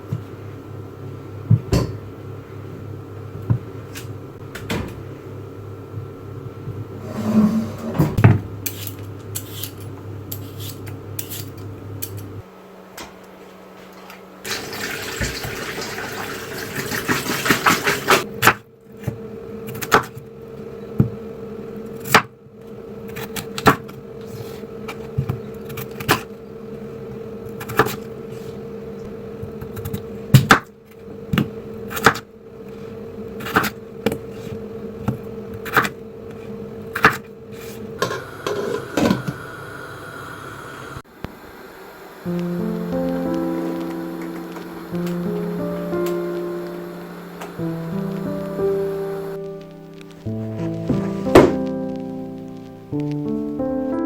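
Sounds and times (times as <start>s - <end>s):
appliance hum: 0.0s - 53.6s
hissing noise: 38.0s - 49.4s.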